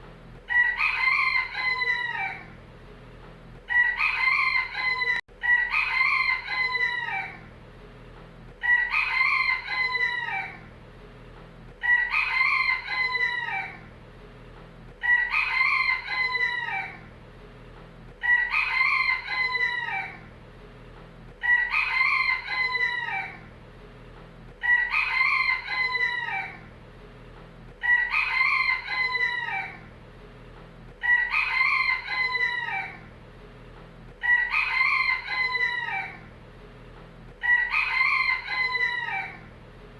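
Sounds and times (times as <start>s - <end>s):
rooster crowing: 0.5s - 2.6s, 3.7s - 7.5s, 8.6s - 10.7s, 11.8s - 13.9s, 15.0s - 17.1s, 18.2s - 20.3s, 21.4s - 23.5s, 24.6s - 26.7s, 27.8s - 29.9s, 31.0s - 33.1s, 34.2s - 36.3s, 37.4s - 39.5s.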